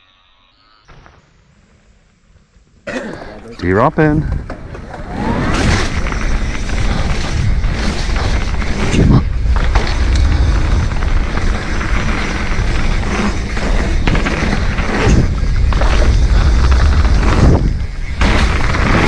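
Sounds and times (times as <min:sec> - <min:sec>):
bike tyre and frame noise: 0:00.0 - 0:19.0
heavy thumps: 0:03.3 - 0:19.0
wind rumbling on microphone: 0:04.1 - 0:19.0.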